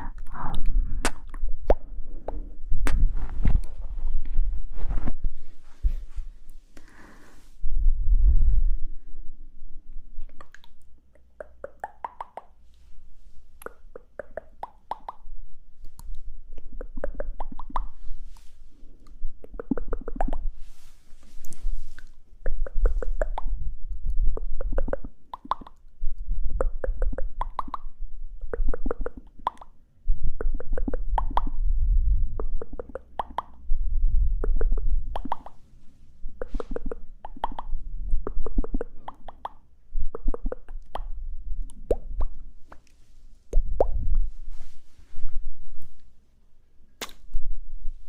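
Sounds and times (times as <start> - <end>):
lip pops: 0.2 - 3.1, 10.2 - 12.6, 13.6 - 15.3, 16.0 - 18.0, 19.0 - 20.5, 21.5 - 25.8, 26.5 - 29.8, 34.4 - 35.6, 36.4 - 42.9, 47.0 - 47.4
wet tongue clicks: 10.2 - 12.6, 13.6 - 15.3, 15.9 - 18.0, 19.0 - 20.5, 21.4 - 29.8, 30.4 - 31.6, 32.4 - 33.7, 34.4 - 35.6, 36.4 - 42.9, 47.0 - 47.3.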